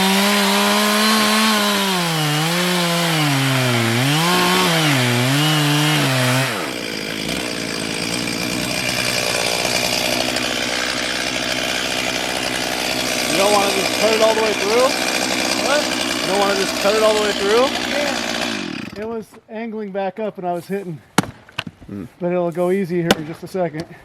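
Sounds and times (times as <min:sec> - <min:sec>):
chainsaw cutting wood: 0:00.0 - 0:19.2.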